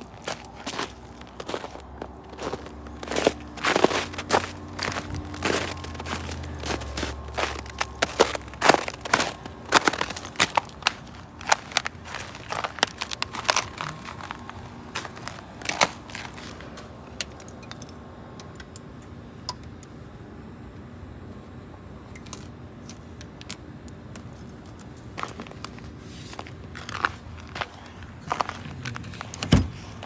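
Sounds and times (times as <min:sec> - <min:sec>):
footsteps crunching in snow: 0:00.0 - 0:17.1, 0:25.2 - 0:29.0
steady low hum: 0:00.0 - 0:30.0.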